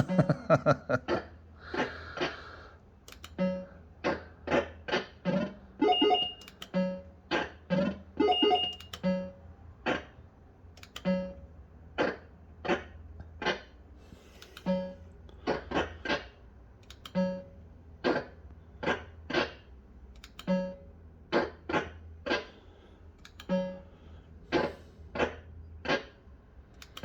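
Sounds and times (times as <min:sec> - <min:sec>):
fruit machine electronic beeps: 0:05.1 - 0:09.4, 0:11.0 - 0:11.5, 0:17.1 - 0:17.6, 0:20.4 - 0:21.7, 0:23.4 - 0:24.0.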